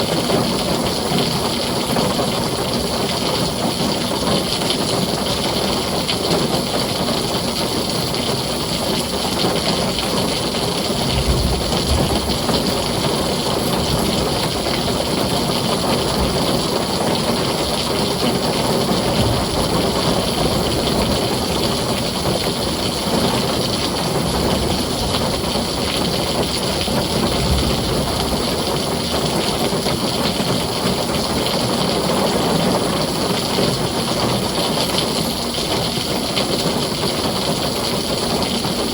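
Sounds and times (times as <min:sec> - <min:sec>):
heavy rain on a tin roof: 0:00.0 - 0:38.9
low rumbles: 0:10.4 - 0:30.3.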